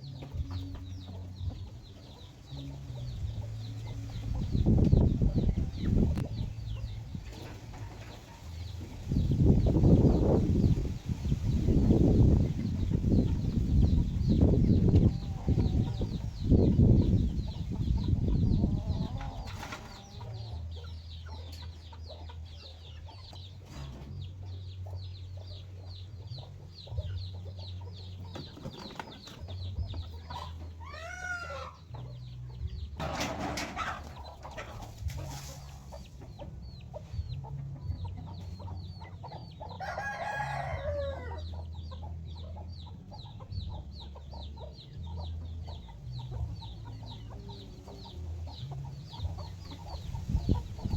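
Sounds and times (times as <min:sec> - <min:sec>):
chickens clucking: 0:00.0 - 0:50.9
rooster crowing: 0:39.8 - 0:41.4.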